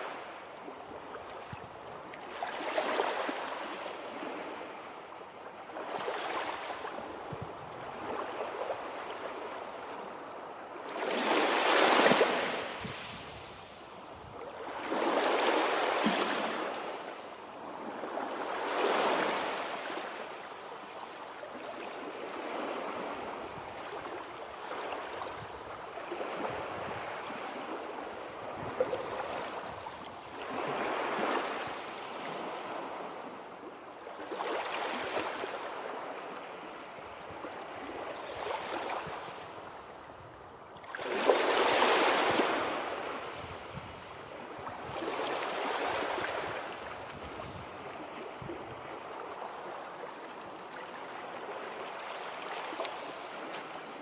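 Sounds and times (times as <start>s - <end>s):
sea waves washing on shore: 0.0s - 36.8s.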